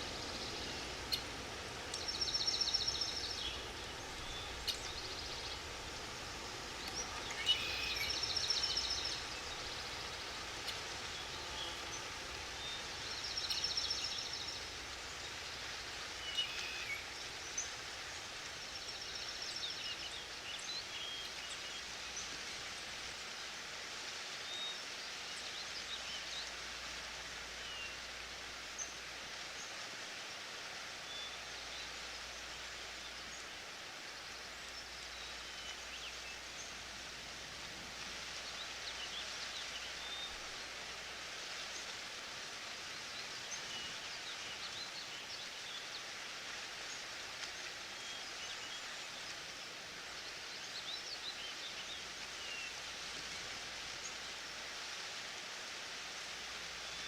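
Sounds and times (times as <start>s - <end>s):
steady rushing hiss: 0.0s - 57.0s.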